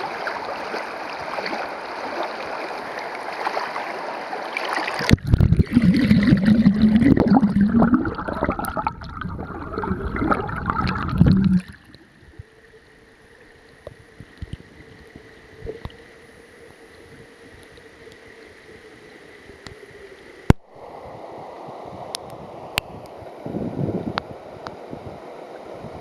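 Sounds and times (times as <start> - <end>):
water gurgling over stones: 0.0 - 16.8.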